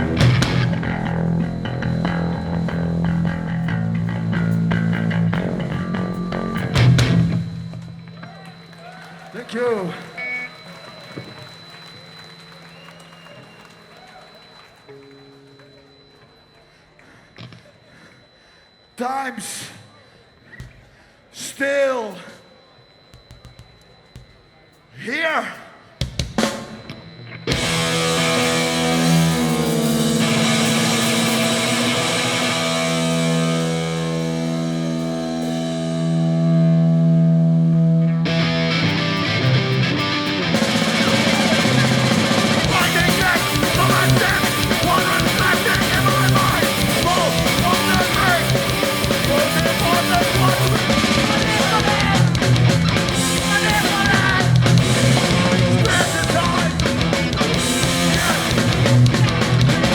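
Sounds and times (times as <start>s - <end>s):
punk band playing live: 0.0s - 8.2s, 26.0s - 59.9s
held guitar chords ringing: 0.0s - 8.6s, 26.4s - 59.9s
drums: 0.0s - 15.1s, 20.5s - 24.9s, 25.9s - 59.9s.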